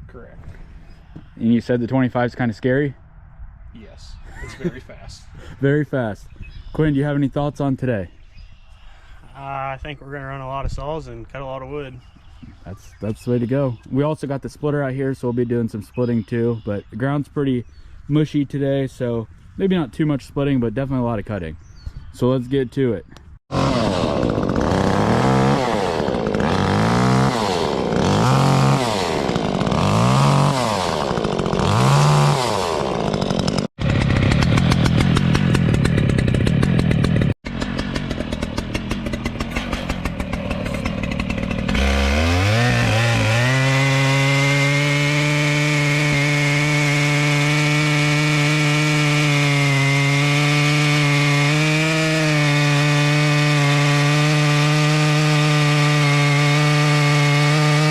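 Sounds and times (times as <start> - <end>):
chainsaw revving: 23.4 - 57.9.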